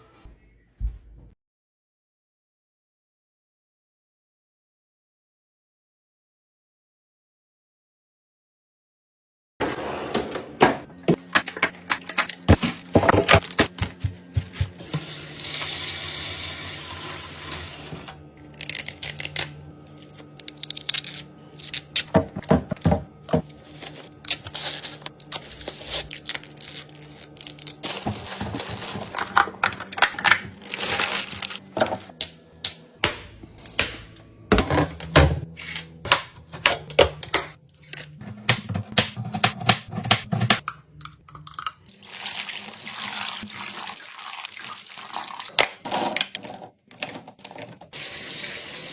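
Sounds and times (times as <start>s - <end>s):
plastic containers clattering: 11.1s - 14.8s, 27.8s - 32.1s
water running: 13.7s - 18.2s, 41.9s - 45.7s, 47.9s - 48.9s.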